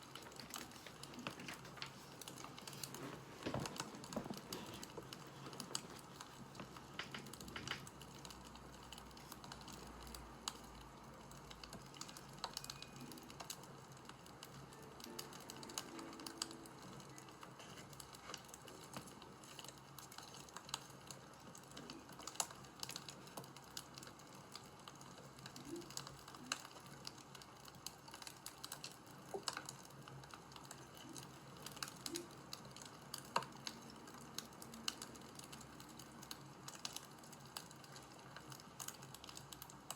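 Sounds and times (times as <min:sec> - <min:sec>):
fire crackling and popping: 0:00.0 - 0:39.9
low steady hiss: 0:00.0 - 0:39.9.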